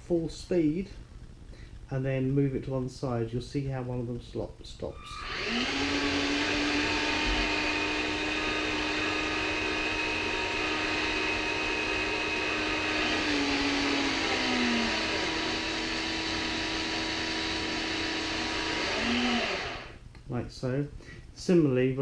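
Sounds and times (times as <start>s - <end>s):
electric motors whining: 5.0s - 20.0s.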